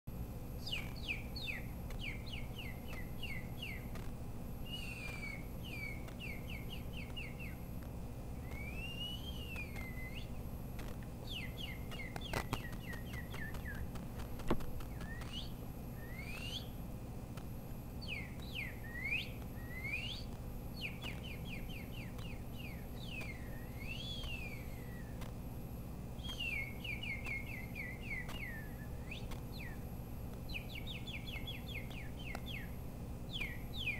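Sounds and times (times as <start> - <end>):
low hum: 0.1 - 33.9
bird singing: 0.5 - 10.5, 11.2 - 14.0, 14.8 - 16.9, 17.9 - 25.3, 26.1 - 33.9
sharp clicks: 6.0 - 6.3.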